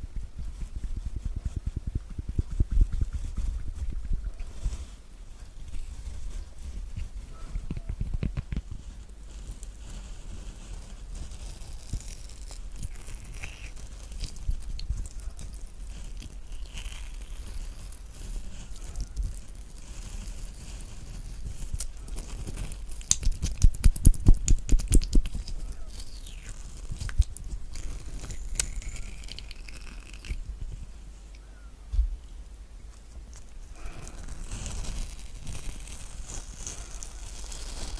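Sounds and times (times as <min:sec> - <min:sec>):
spoon scraping kiwi flesh: 0:11.6 - 0:30.4.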